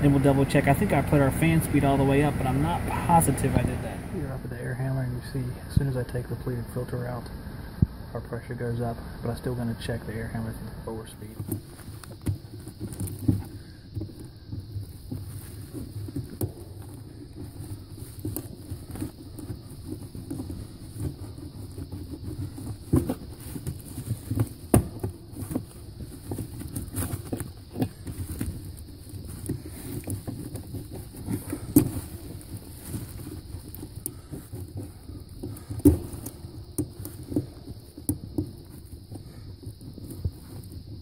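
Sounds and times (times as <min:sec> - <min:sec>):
air handler low hum: 0:00.0 - 0:11.5
hands rustling: 0:11.2 - 0:41.0.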